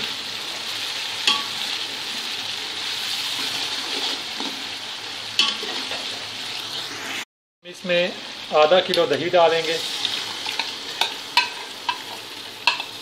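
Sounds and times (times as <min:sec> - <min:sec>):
vegetables sizzling in oil: 0:00.0 - 0:13.0
spoon knocking against pot: 0:12.6 - 0:12.9.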